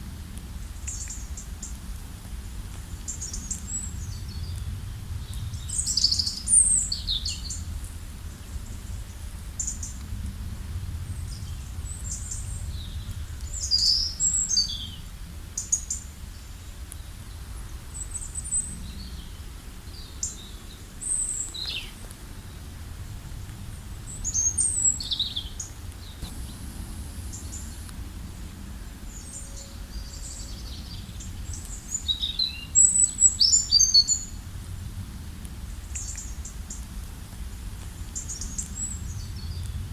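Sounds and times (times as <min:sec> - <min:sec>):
songbirds chirping: 0:11.2 - 0:22.8, 0:23.8 - 0:34.4.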